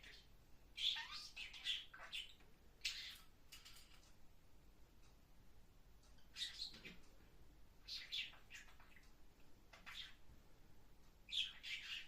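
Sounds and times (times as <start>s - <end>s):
parrot chirping: 0.0s - 4.0s, 6.1s - 7.0s, 7.8s - 10.2s, 11.3s - 12.0s.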